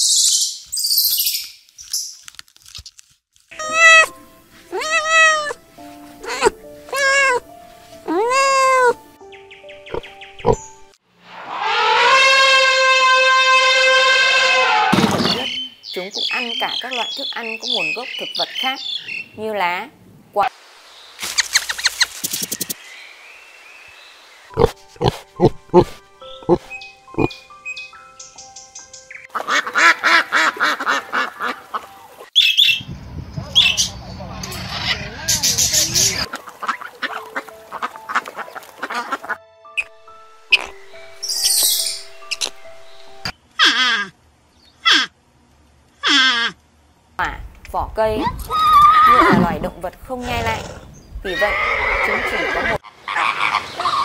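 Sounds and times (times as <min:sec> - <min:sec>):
quiet background music: 0:03.5 - 0:11.0, 0:24.5 - 0:32.3, 0:35.9 - 0:43.5
kitten mewing: 0:03.6 - 0:05.6, 0:06.2 - 0:07.4, 0:08.1 - 0:09.0
macaws squawking: 0:03.6 - 0:05.6, 0:06.2 - 0:07.4, 0:08.1 - 0:09.0, 0:24.6 - 0:27.9, 0:29.1 - 0:32.8, 0:34.6 - 0:39.9, 0:40.5 - 0:42.6, 0:43.6 - 0:44.2, 0:44.8 - 0:45.2, 0:46.0 - 0:46.6, 0:51.3 - 0:54.0
music notes: 0:36.3 - 0:43.3.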